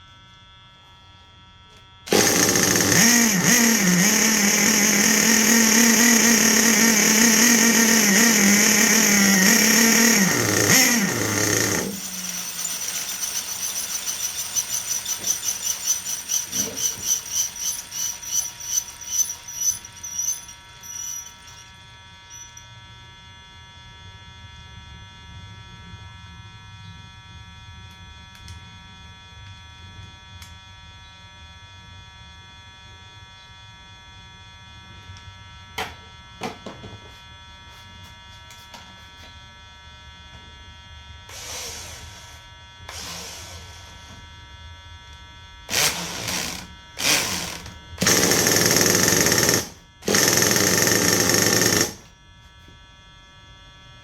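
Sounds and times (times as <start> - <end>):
small nitro engine running: 2.1 - 21.7, 43.0 - 44.1, 45.7 - 52.0.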